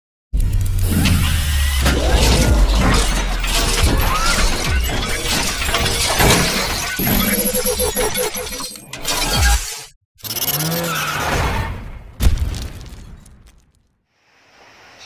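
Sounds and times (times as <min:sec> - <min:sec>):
music: 0:00.4 - 0:07.1
crashing and shattering: 0:01.9 - 0:07.0.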